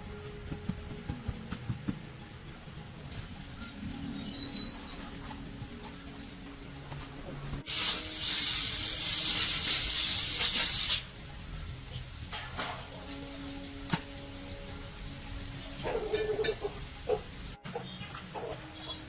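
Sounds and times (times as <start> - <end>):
compressed air hissing: 7.6 - 11.2.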